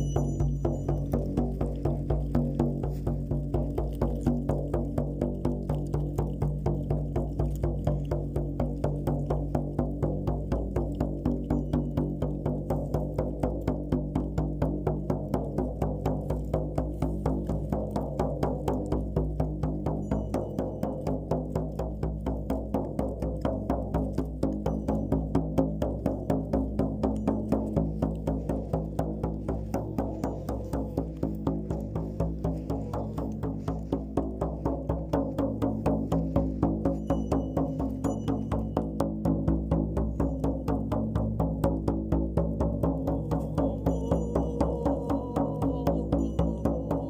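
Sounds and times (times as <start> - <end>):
frame drum beating: 0.0 - 47.0.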